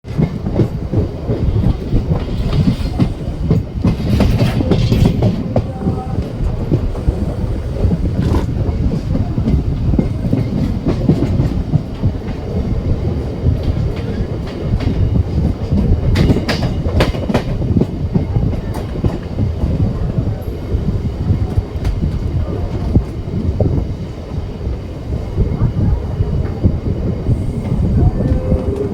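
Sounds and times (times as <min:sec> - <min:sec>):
train rumbling: 0:00.0 - 0:28.9
wheels clacking over rail joints: 0:00.1 - 0:12.5.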